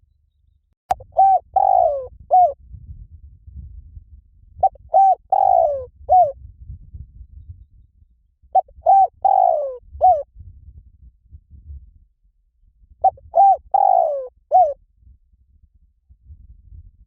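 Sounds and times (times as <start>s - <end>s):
dove cooing: 0.9s - 2.6s, 4.6s - 6.4s, 8.6s - 10.3s, 13.0s - 14.8s.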